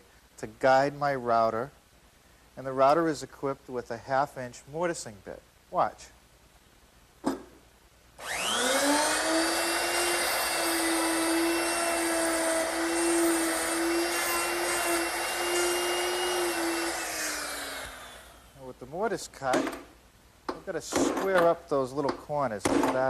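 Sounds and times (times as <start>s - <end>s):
electric router whining: 8.2s - 18.5s.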